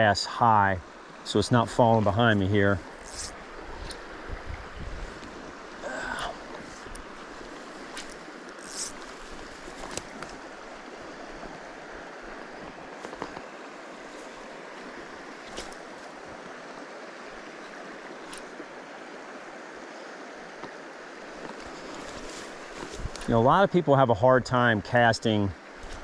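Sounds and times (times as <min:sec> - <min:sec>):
stream rushing: 0:00.0 - 0:26.0.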